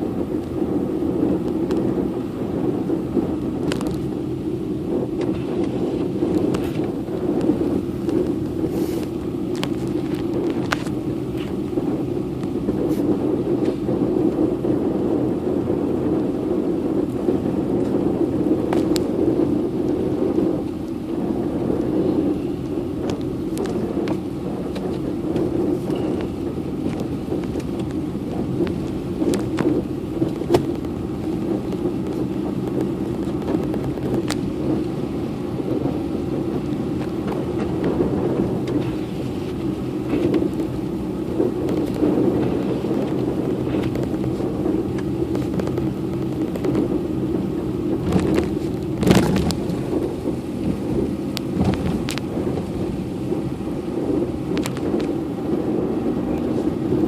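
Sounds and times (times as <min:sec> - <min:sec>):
car driving on snowy road: 0:00.0 - 0:57.0.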